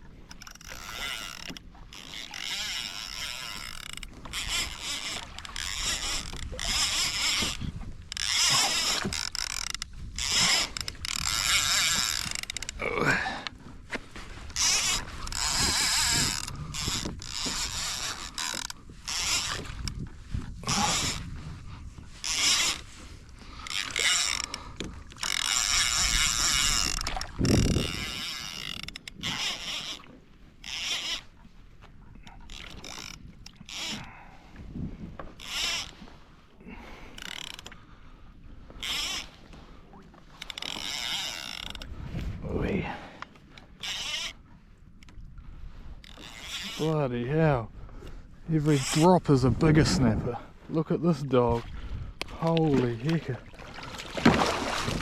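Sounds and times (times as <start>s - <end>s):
fishing reel clicking and grinding: 0.3s - 13.6s, 14.5s - 21.4s, 22.2s - 31.4s, 32.2s - 34.2s, 35.3s - 36.0s, 37.1s - 37.8s, 38.8s - 39.5s, 40.3s - 42.4s, 43.4s - 45.2s, 46.0s - 47.0s, 48.6s - 50.0s.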